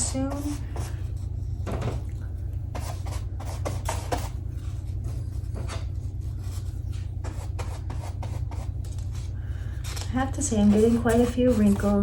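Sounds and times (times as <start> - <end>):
steady low hum: 0.0 - 12.0
paper rustling: 8.7 - 12.0.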